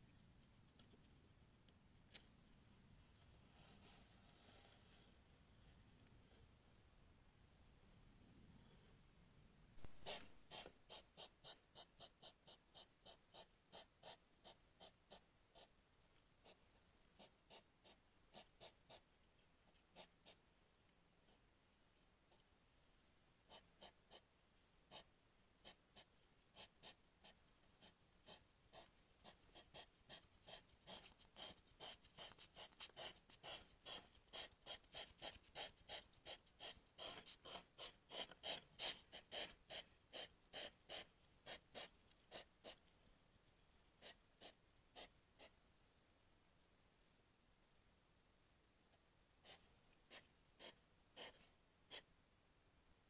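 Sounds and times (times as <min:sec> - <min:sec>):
hedgehog huffing: 0:09.8 - 0:15.8, 0:17.2 - 0:19.1, 0:19.7 - 0:20.4, 0:23.5 - 0:24.3, 0:24.9 - 0:42.9, 0:44.0 - 0:45.6, 0:49.4 - 0:52.1.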